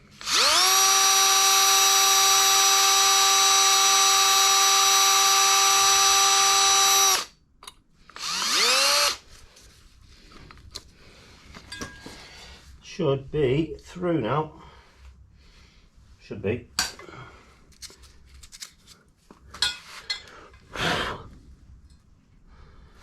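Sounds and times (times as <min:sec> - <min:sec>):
power drill running: 0:00.1 - 0:07.3, 0:08.1 - 0:09.2.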